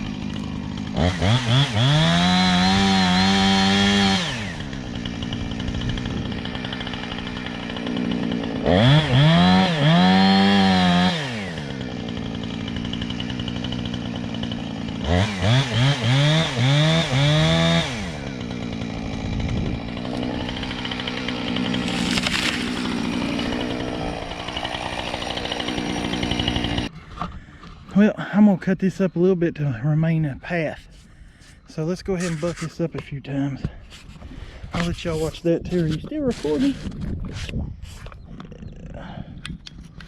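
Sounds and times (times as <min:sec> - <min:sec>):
chainsaw revving: 0:00.0 - 0:26.9.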